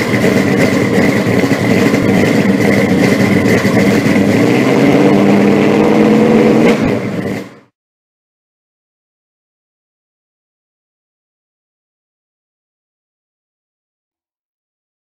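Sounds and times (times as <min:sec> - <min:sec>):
car engine running: 0:00.0 - 0:07.7.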